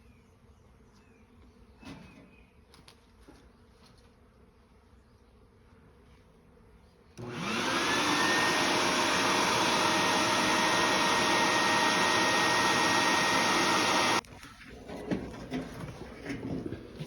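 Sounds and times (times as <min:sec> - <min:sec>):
vacuum motor whining: 0:07.2 - 0:14.2.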